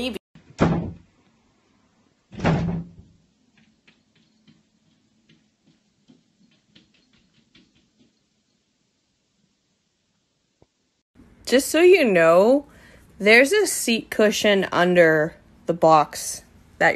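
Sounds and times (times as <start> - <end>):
cat's paws tapping on window: 3.0 - 8.9.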